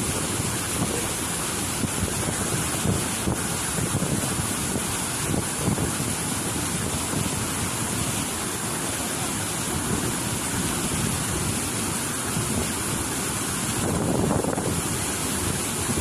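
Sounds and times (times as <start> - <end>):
wind buffeting microphone: 0.0 - 8.3, 13.7 - 16.0
steady rushing roar: 0.0 - 16.0.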